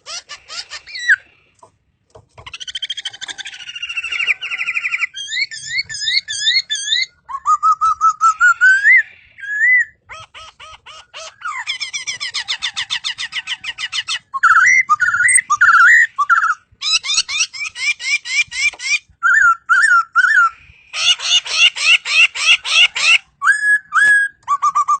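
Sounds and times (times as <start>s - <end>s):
bird singing varied whistles: 3.8s - 10.0s, 14.3s - 17.3s, 19.2s - 20.7s, 23.4s - 25.0s.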